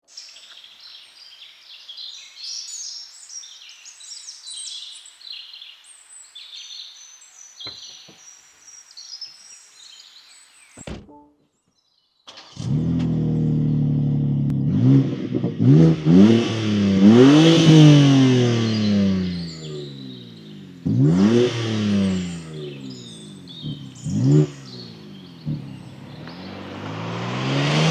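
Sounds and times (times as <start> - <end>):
songbirds chirping: 0.0 - 27.9
car engine starting and running: 12.3 - 27.9.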